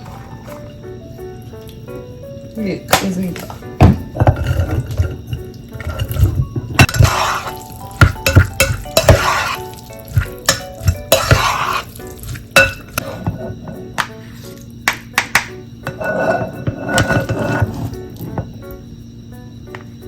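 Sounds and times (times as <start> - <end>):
quiet background music: 0.0 - 20.0
utensils clinking and scraping: 2.9 - 13.9, 15.8 - 18.4.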